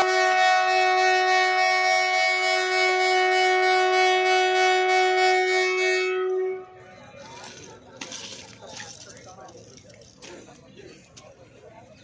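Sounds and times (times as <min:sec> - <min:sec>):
train horn blast: 0:00.0 - 0:06.9.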